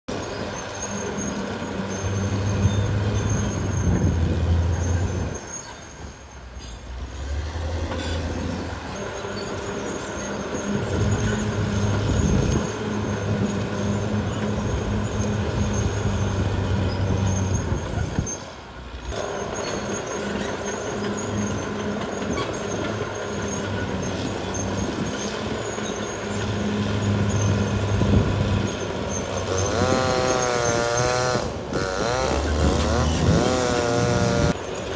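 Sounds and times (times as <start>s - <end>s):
bulldozer diesel engine: 0.0s - 34.9s
high squeal: 0.1s - 34.9s.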